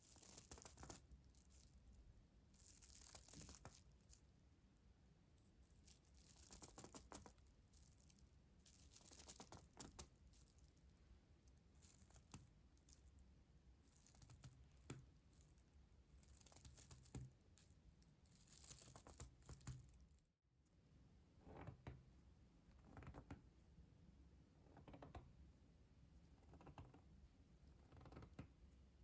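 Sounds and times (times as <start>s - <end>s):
light crinkling and scratching: 0.0s - 4.4s, 5.4s - 13.2s, 13.8s - 20.2s.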